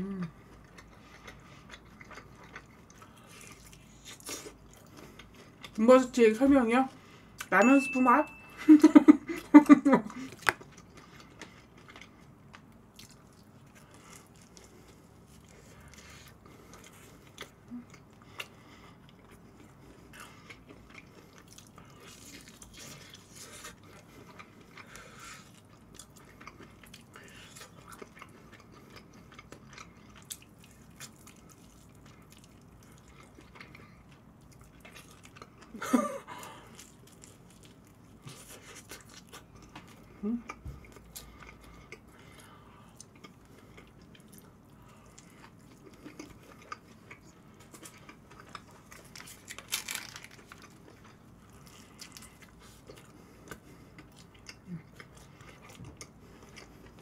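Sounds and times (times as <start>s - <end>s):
person humming: 0.0s - 0.4s
chewing and biting food: 0.3s - 5.8s, 9.3s - 57.0s
small crunches: 47.8s - 52.4s.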